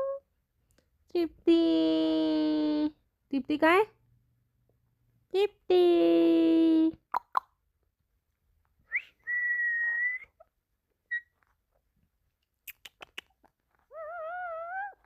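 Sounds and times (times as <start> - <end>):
parrot whistling: 8.9 - 10.4, 11.1 - 11.3.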